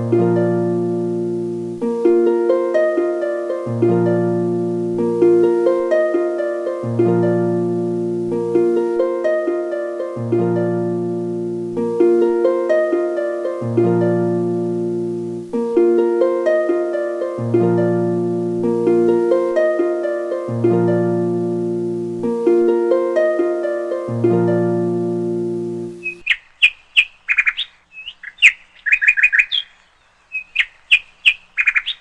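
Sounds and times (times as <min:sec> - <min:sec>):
low bass notes: 0:00.0 - 0:02.8, 0:03.7 - 0:06.1, 0:06.8 - 0:09.4, 0:10.2 - 0:12.9, 0:13.6 - 0:26.0
plucked-string melody: 0:00.0 - 0:26.2.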